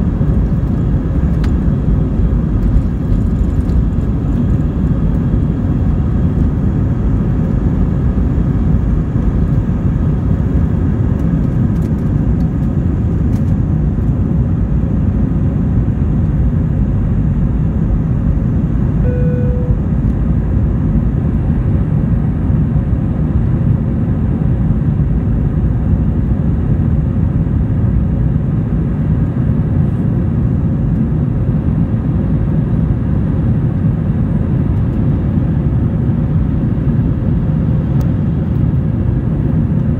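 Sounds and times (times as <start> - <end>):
airliner cabin rumble: 0.0 - 39.9
brief tone: 19.0 - 20.1.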